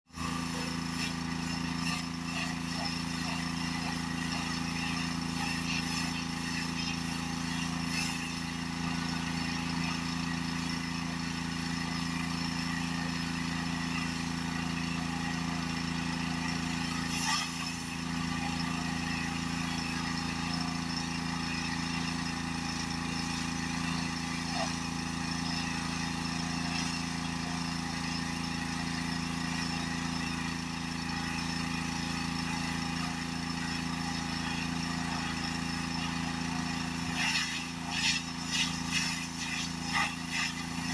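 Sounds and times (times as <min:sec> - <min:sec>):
pressure washer engine drone: 0:00.1 - 0:40.9
high-pressure spray hiss: 0:37.1 - 0:40.9.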